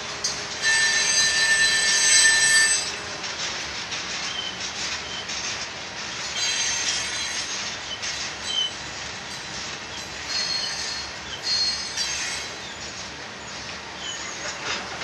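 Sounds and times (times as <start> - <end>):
train wheels rumbling on rail: 0.0 - 15.0
high-pitched wheel squeals: 0.6 - 3.0, 10.3 - 12.6.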